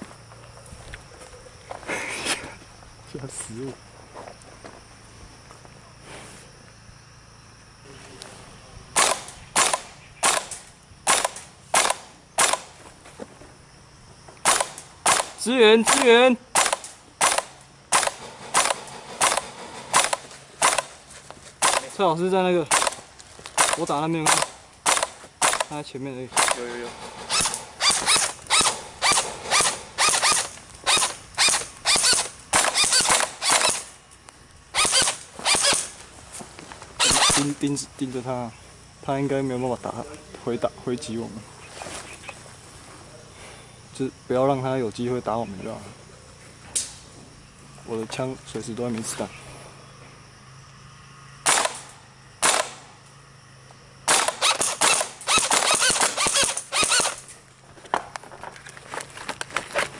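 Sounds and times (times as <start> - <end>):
airsoft guns firing: 9.0 - 12.8, 14.4 - 21.0, 21.6 - 22.0, 22.7 - 33.9, 34.8 - 36.0, 37.0 - 37.6, 51.4 - 52.9, 54.0 - 57.2.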